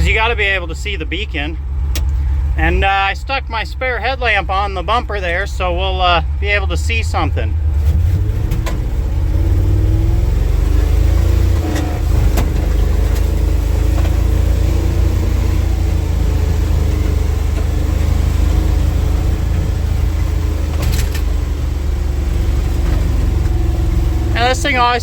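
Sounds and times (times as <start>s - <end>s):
clattery truck engine running: 0.0s - 25.0s.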